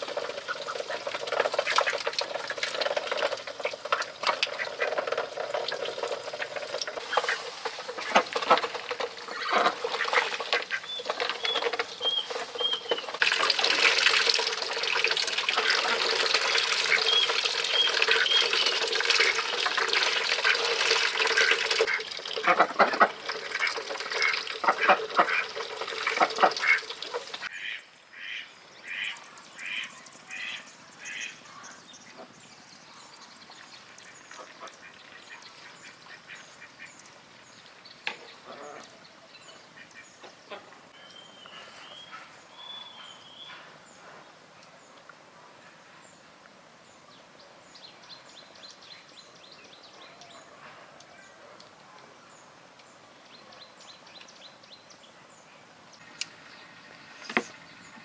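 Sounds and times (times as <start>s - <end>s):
harsh bird calls: 9.2s - 13.2s
bird chirps: 10.7s - 13.2s, 37.9s - 44.9s.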